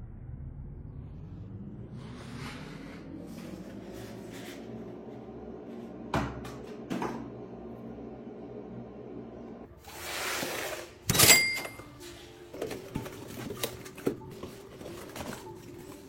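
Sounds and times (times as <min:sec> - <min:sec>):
steady low hum: 0:00.0 - 0:09.7.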